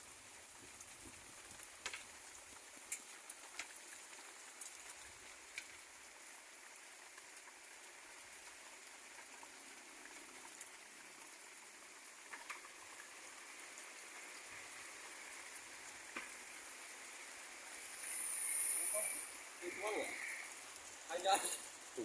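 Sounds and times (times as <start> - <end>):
steady rain falling: 0.0 - 22.0
sharp raindrop taps: 0.7 - 5.9, 15.8 - 16.5.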